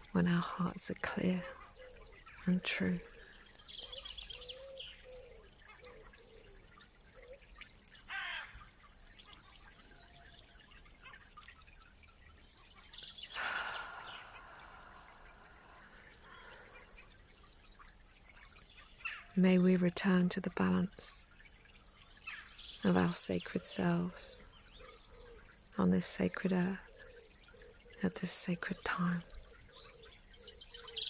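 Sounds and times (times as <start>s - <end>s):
birds calling: 1.4s - 6.5s, 12.6s - 19.4s, 28.6s - 31.0s.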